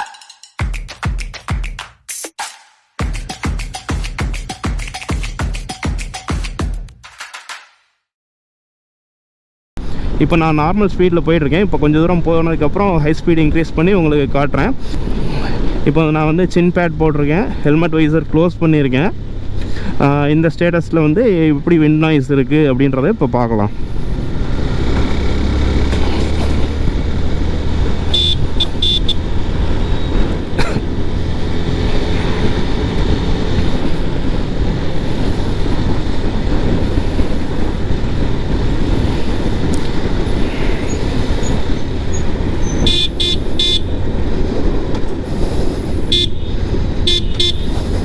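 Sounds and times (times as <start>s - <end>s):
wind rumbling over helmet mic: 23.7s - 48.0s
short horn toots: 28.1s - 29.2s, 42.6s - 44.0s, 46.1s - 48.0s.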